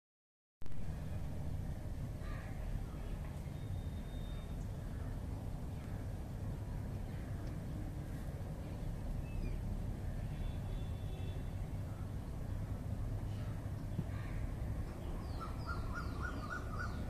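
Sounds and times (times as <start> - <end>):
faint bird calls: 9.2 - 17.0.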